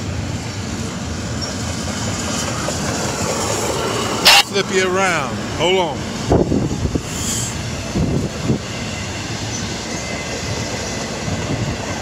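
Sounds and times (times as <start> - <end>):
train wheels rumbling on rails: 0.0 - 12.0
wind buffeting microphone: 6.0 - 12.0.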